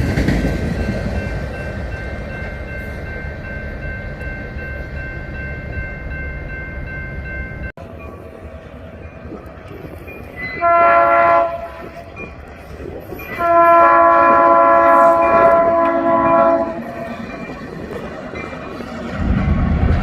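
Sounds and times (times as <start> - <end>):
train rumbling: 0.0 - 20.0
locomotive air horn: 10.6 - 12.0, 13.3 - 17.0.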